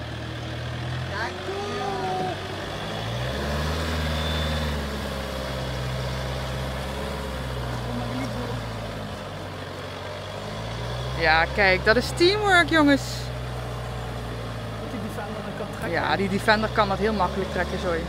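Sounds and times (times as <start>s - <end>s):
vehicle engines running under load: 0.0s - 18.0s.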